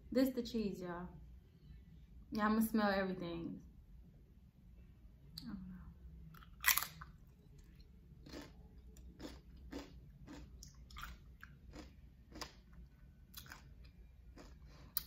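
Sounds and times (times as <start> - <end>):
chewing with soft crunches: 6.3 - 15.0
tortilla chip crunch: 6.4 - 7.2, 8.2 - 12.6.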